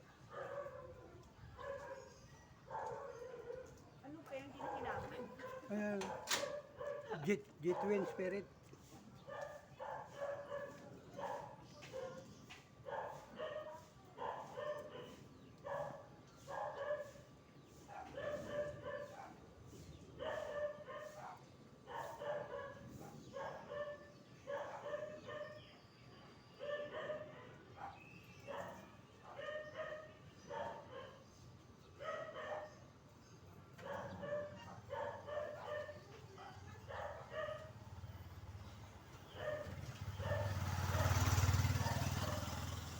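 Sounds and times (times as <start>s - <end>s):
dog barking: 0.0s - 3.8s, 4.4s - 8.4s, 9.2s - 25.7s, 26.6s - 31.3s, 32.0s - 32.9s, 33.8s - 38.0s, 39.3s - 42.8s.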